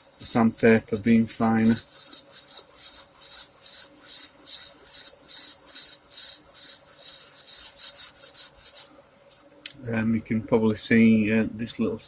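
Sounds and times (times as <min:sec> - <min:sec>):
sandpaper rasping on metal frets: 0:00.0 - 0:08.9.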